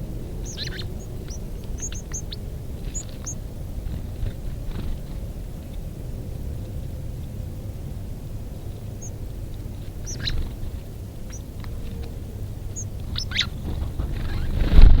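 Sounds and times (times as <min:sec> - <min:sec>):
sparrows chip calls: 0:00.0 - 0:05.2, 0:08.4 - 0:14.6
steady low rumble: 0:00.0 - 0:15.0.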